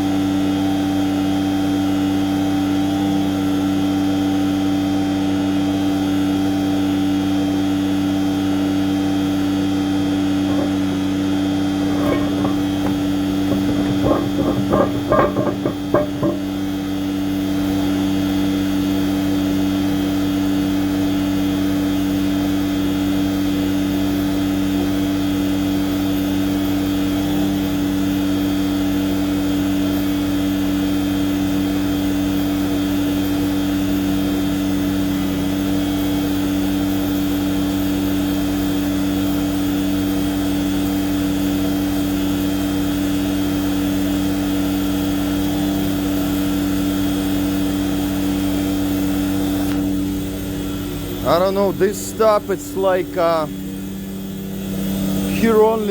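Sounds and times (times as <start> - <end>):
truck pump engine droning: 10.4 - 16.9.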